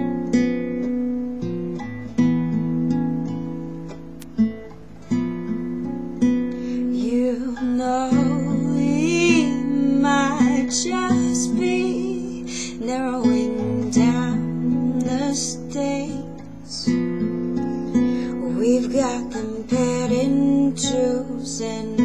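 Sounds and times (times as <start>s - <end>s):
acoustic guitar strumming: 0.0s - 22.0s
person singing: 6.7s - 17.0s, 18.1s - 22.0s.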